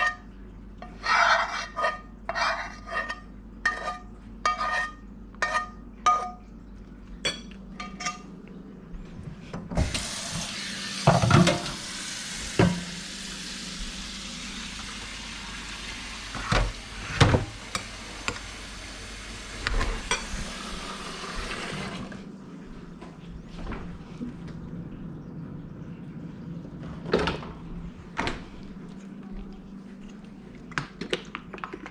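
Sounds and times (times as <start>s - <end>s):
tap running into sink: 9.8s - 13.0s
dishes knocking: 16.4s - 17.5s.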